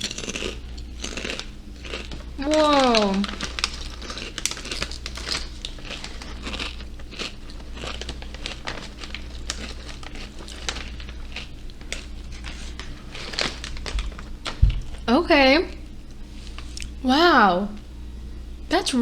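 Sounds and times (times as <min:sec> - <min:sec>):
chewing crisp chip: 0:00.0 - 0:14.6.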